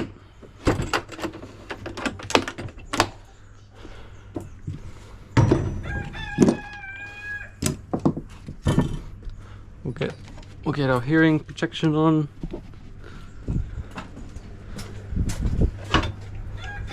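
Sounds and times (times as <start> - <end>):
rooster crowing: 5.7 - 7.6, 16.5 - 16.9
metal parts and tools clinking: 8.4 - 9.2, 9.9 - 11.4.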